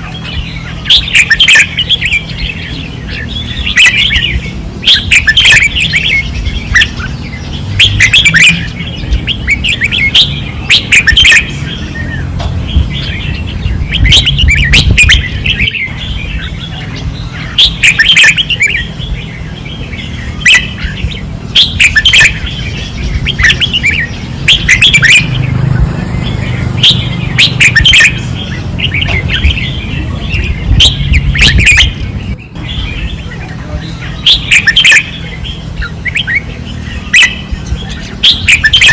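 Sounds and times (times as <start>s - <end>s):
birds singing fast phrases: 0.0s - 38.9s.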